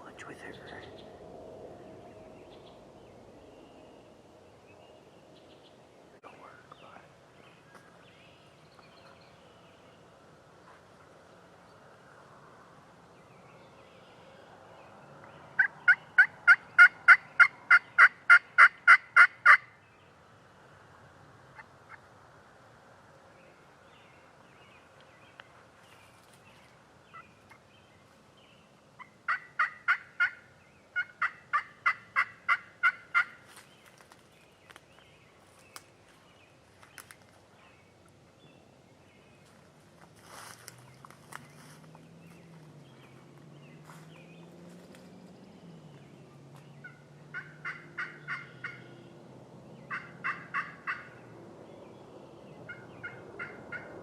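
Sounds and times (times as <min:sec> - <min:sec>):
turkey calling: 0:15.6 - 0:19.7, 0:29.0 - 0:33.4, 0:46.8 - 0:48.9, 0:49.9 - 0:51.2, 0:52.7 - 0:53.9.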